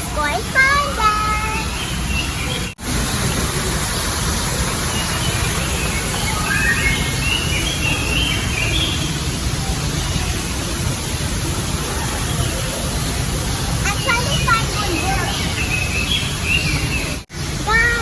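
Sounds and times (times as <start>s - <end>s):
small waterfall rushing: 0.0s - 18.0s.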